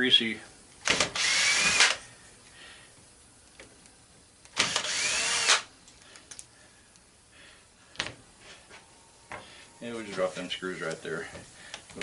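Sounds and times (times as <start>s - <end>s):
power drill running: 0.8s - 2.0s, 4.6s - 5.7s.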